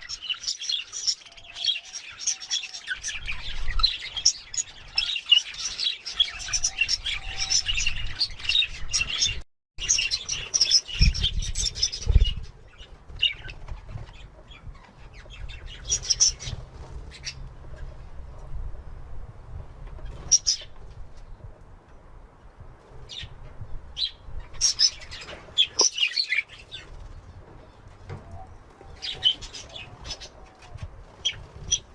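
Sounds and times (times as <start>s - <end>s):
budgerigars chirping: 0.0s - 17.4s.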